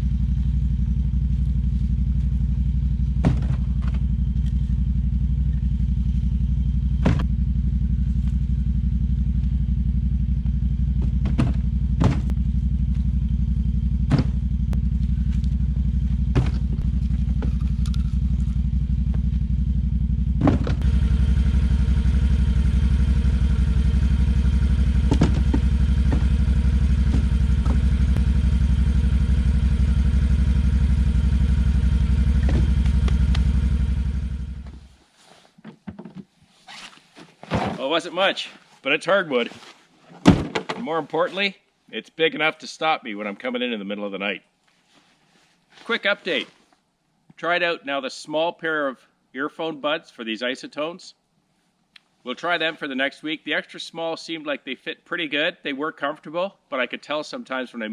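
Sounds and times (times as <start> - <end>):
atv engine running: 0.0 - 35.0
knocks and clatter: 3.1 - 4.7, 7.0 - 7.3, 10.8 - 13.1, 14.0 - 15.5, 16.1 - 19.3, 20.3 - 20.9, 24.9 - 28.2, 32.3 - 33.3.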